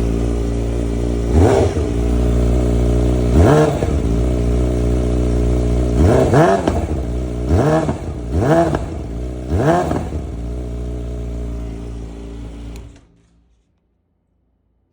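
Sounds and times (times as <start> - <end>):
motorcycle engine idling: 0.0 - 13.0
motorcycle engine revving: 0.0 - 13.1
click: 12.7 - 13.9.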